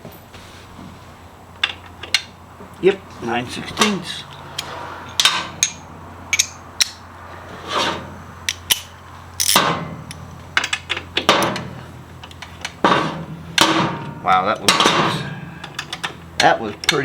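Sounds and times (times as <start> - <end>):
wrench clicking: 4.3 - 7.0, 8.5 - 11.1
metal hand tools clinking: 8.5 - 9.6.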